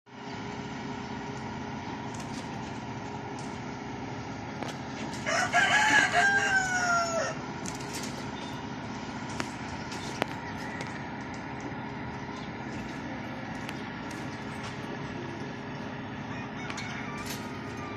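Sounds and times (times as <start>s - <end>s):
background hum: 0.1s - 17.9s
rooster crowing: 5.1s - 7.5s, 10.2s - 11.2s, 16.2s - 17.9s.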